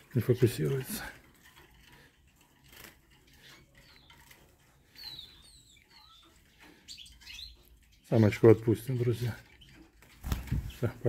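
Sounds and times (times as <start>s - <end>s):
faint small bird chirps: 3.3s - 8.2s.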